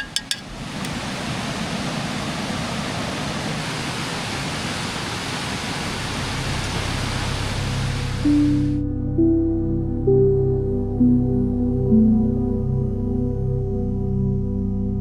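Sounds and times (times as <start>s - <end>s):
creek water rushing: 0.0s - 8.8s
soft music: 6.1s - 15.0s.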